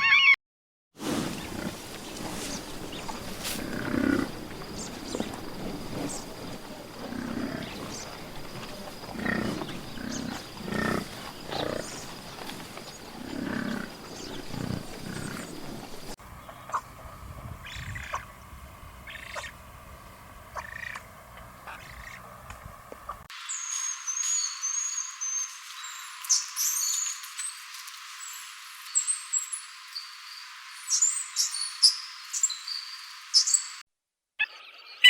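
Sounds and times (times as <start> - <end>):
deep low animal calls: 1.2 - 19.6
high-pitched chirping calls: 28.2 - 33.8.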